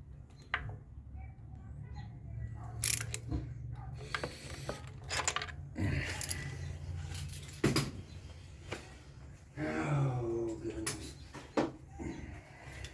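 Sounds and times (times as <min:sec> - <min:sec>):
metal tools clinking: 0:02.7 - 0:03.3, 0:04.0 - 0:07.8.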